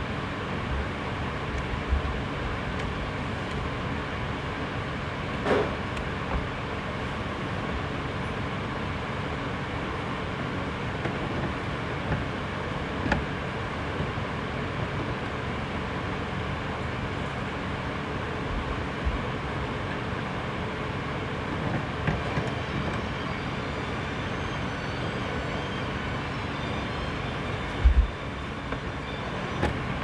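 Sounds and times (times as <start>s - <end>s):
low hum: 22.3s - 30.0s.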